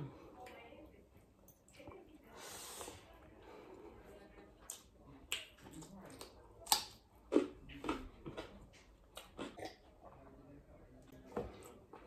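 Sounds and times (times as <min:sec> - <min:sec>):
chewing with lip smacks: 0:04.6 - 0:10.2.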